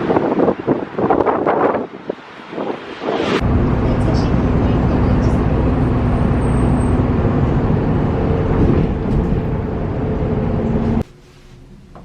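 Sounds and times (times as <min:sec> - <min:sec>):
loud steady rumbling: 0:02.5 - 0:11.0.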